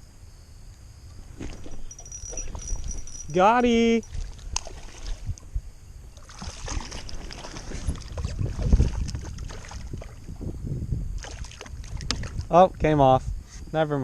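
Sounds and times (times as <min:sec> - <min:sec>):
wind gusting over microphone: 0:01.0 - 0:14.0
waves slapping against hull: 0:06.2 - 0:10.3, 0:11.2 - 0:12.5.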